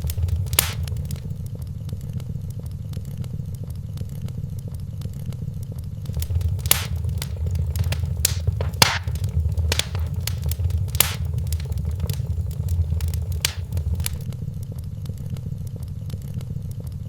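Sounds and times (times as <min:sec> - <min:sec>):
fire pops: 0:00.0 - 0:01.4, 0:06.1 - 0:14.3
low rumble: 0:00.0 - 0:01.4, 0:06.1 - 0:14.2
wood fire crackling: 0:00.0 - 0:01.4, 0:06.1 - 0:14.3.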